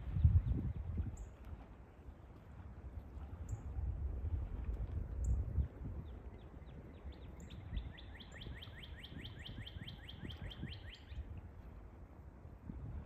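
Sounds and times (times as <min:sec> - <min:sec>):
songbird trilling: 0:06.9 - 0:11.3.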